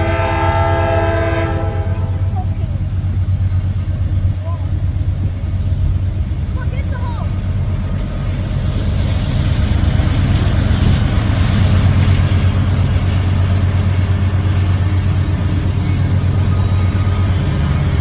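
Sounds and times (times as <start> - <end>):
train rumble: 0.0 - 18.0.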